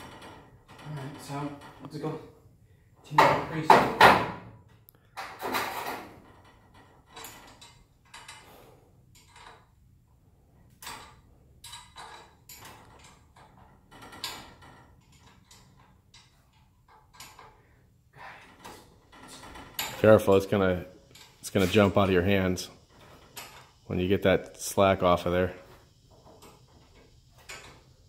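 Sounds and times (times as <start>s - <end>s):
metal tools clicking and clanking: 4.6s - 9.8s, 10.7s - 17.7s, 18.4s - 24.1s, 24.8s - 28.0s.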